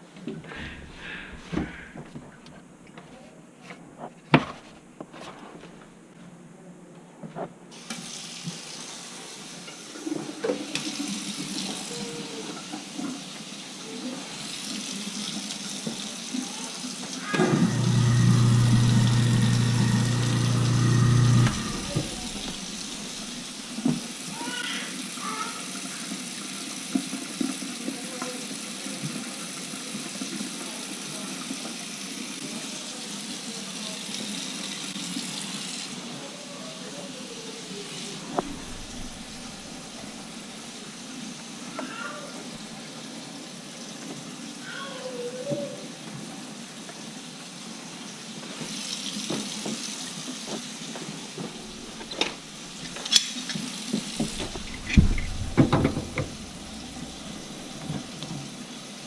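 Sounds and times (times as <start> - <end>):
pump motor humming: 17.4 - 24.0, 38.4 - 40.3, 51.4 - 53.1, 53.9 - 58.5
water rushing: 17.4 - 24.2, 38.3 - 40.7, 51.4 - 53.1, 53.8 - 58.9
knocks: 54.2 - 57.7.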